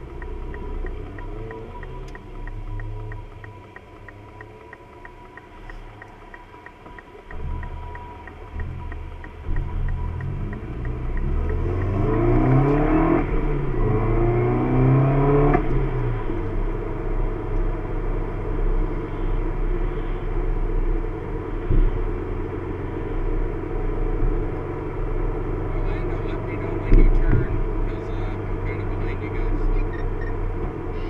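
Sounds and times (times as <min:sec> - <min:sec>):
light ticking: 0:00.0 - 0:13.6
car engine accelerating: 0:00.0 - 0:31.0
road noise: 0:00.0 - 0:31.0.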